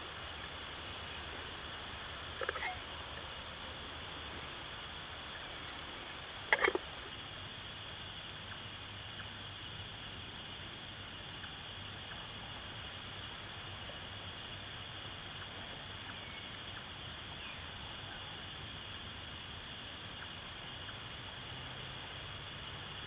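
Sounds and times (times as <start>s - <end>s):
crickets trilling: 0.0s - 9.6s.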